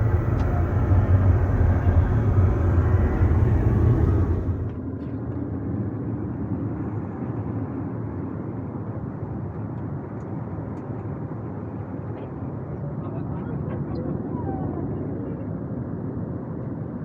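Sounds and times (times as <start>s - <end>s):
aircraft cabin engine rush: 0.0s - 5.0s.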